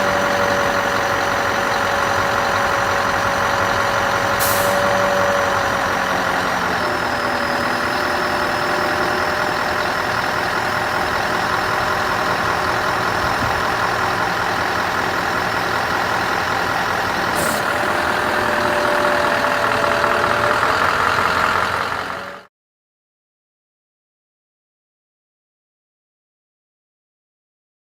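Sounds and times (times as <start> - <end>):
diesel truck engine running: 0.0 - 22.5
air hiss: 17.4 - 17.9.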